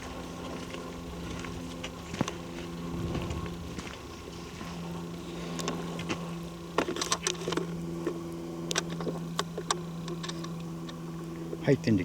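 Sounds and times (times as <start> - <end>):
footsteps on twigs and leaves: 0.0 - 7.6
low hum: 0.0 - 12.0.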